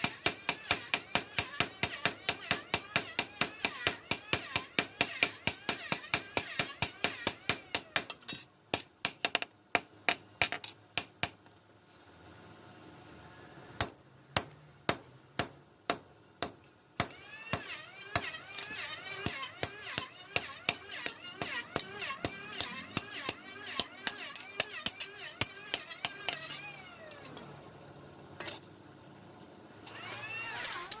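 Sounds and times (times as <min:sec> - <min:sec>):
hammer striking metal: 0:00.0 - 0:08.2.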